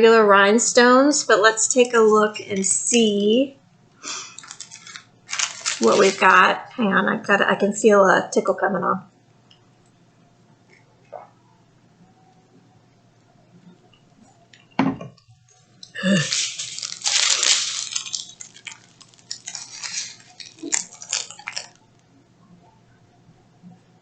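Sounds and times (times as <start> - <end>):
crackling and clicking: 4.2 - 6.5, 15.5 - 22.8.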